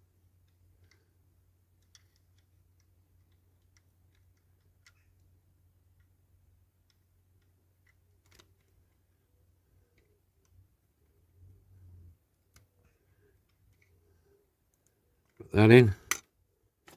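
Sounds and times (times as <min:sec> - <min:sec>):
light clicks of small parts: 0:00.3 - 0:11.2, 0:12.3 - 0:15.4.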